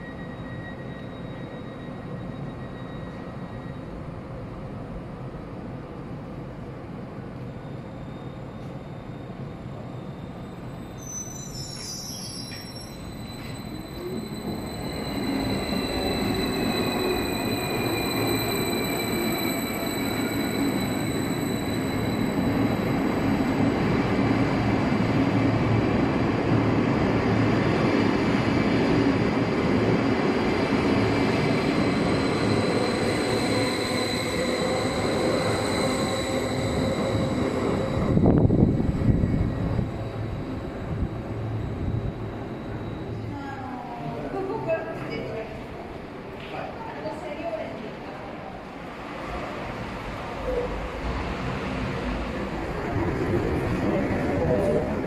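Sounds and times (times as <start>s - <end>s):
train wheels squealing: 0.0s - 4.6s, 7.3s - 45.7s.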